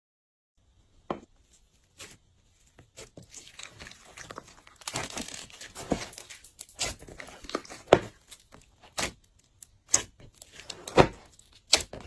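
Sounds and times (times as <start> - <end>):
slime wet crackling and popping: 2.9 - 5.8.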